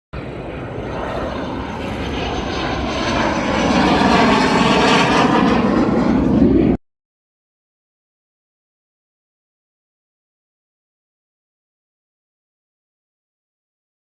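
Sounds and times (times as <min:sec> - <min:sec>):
airplane flying past: 0:00.2 - 0:06.8.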